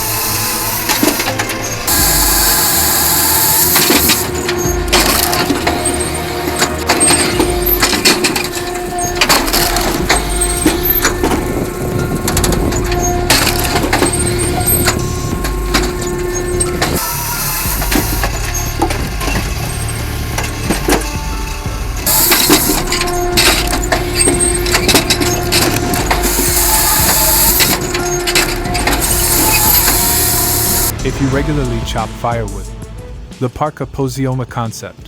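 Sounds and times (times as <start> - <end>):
steady machine hum: 0.0 - 31.7.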